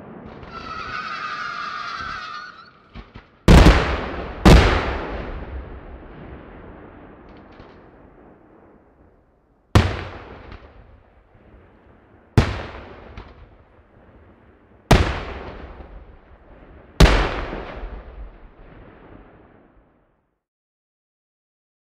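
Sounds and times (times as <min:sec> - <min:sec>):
firework shells bursting: 0:00.3 - 0:05.0.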